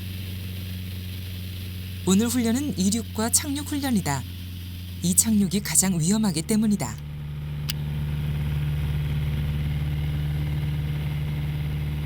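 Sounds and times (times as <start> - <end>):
propeller aircraft engine: 0.0 - 2.0, 3.0 - 5.0, 7.0 - 12.0.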